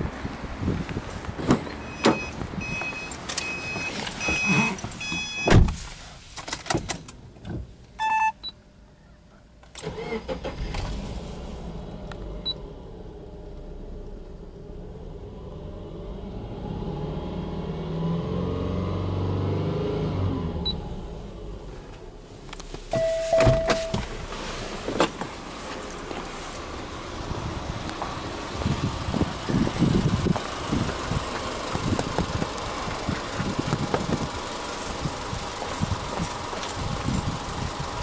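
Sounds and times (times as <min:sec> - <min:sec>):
car warning chime beeping: 0:01.7 - 0:05.6, 0:08.0 - 0:08.6, 0:22.9 - 0:24.1
car engine starting and revving: 0:09.7 - 0:38.0.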